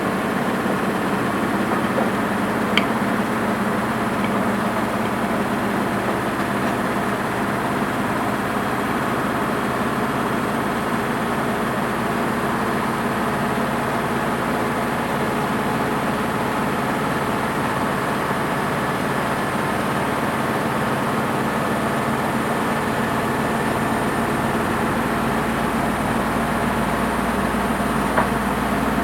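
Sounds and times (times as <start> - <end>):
washing machine motor hum: 0.0 - 11.3.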